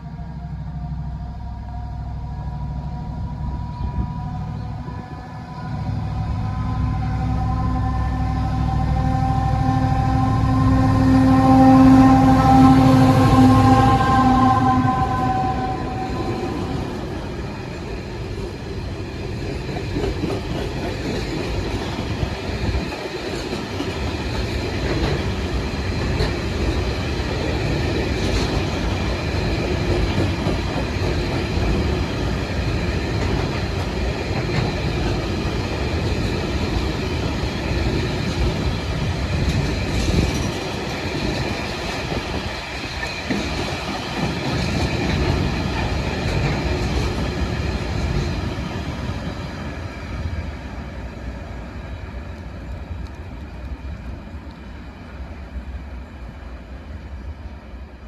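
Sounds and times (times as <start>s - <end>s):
train wagons rumbling: 0.0s - 57.9s
wheels clacking on rail joints: 14.0s - 50.4s.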